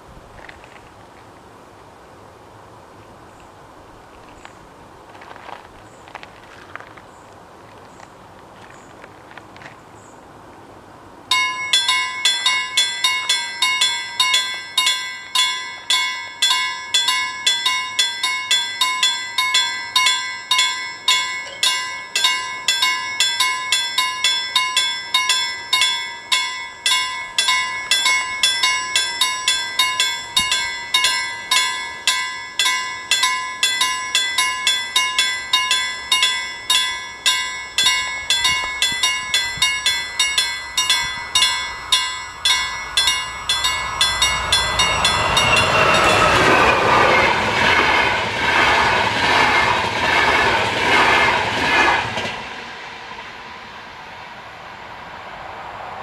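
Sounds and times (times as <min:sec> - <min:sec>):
level crossing warning bell: 0:11.3 - 0:51.2.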